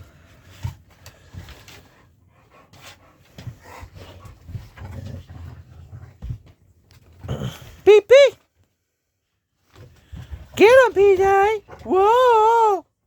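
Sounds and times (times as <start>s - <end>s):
dog panting: 1.7s - 6.2s.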